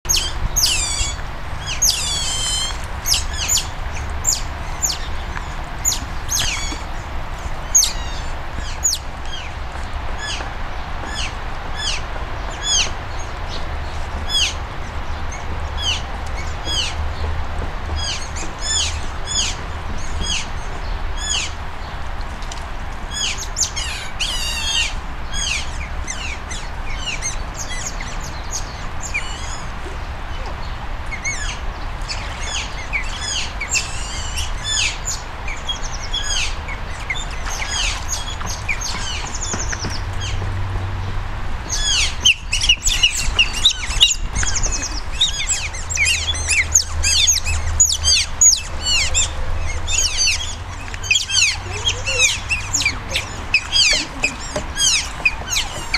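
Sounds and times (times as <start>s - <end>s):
otters chirping: 0.0s - 9.5s, 41.7s - 55.9s.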